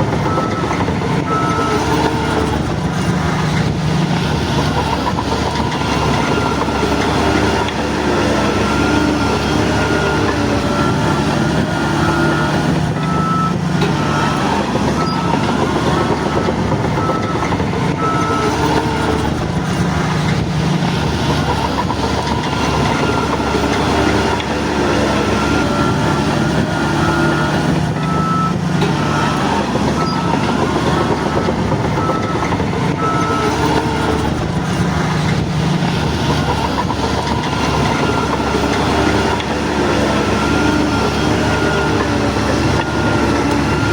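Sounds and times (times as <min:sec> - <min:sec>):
backup alarm beeping: 0:00.0 - 0:02.6, 0:09.8 - 0:19.4, 0:22.3 - 0:34.4
bulldozer diesel engine: 0:00.0 - 0:43.9
clatter of tracks: 0:00.0 - 0:43.9.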